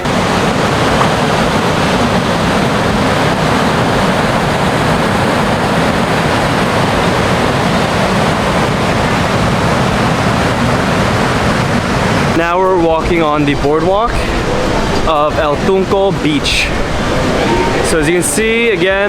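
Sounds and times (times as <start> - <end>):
ocean surf breaking on rocks: 0.0 - 19.0.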